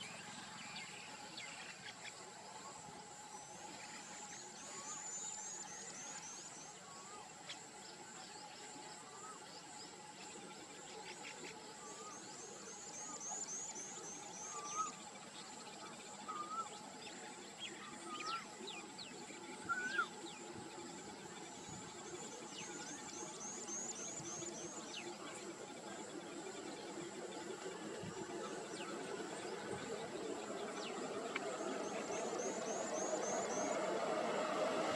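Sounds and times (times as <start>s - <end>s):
insects droning and chirping: 0.0s - 34.9s
bird whistling: 19.7s - 20.1s.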